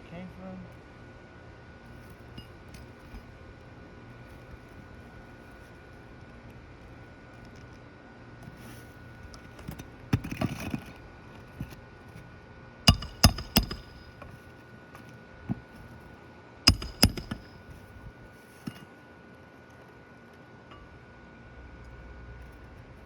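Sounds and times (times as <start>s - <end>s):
hammer striking nails: 12.9s - 14.3s, 16.7s - 17.6s
light hammer taps: 16.7s - 17.5s.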